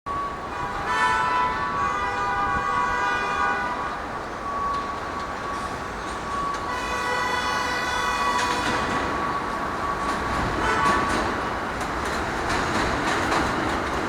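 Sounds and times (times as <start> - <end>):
subway train horn blast: 0.1 - 4.9, 5.8 - 11.8
train rumbling: 0.1 - 14.0.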